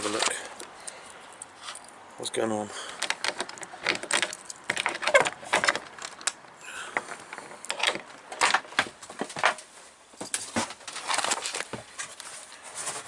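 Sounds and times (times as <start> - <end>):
clicks knocks and rattles: 3.0 - 9.6.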